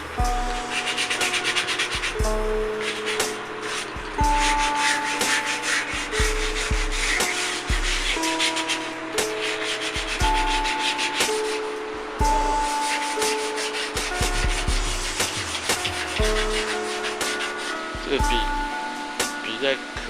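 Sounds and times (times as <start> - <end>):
sanding strokes on wood: 0.0 - 20.0.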